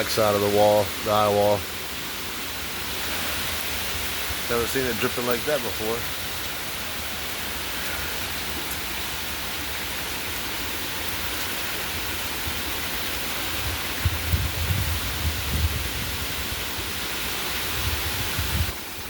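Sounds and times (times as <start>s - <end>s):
heavy rain hissing: 0.0s - 19.0s
wind gusts buffeting microphone: 12.9s - 19.0s.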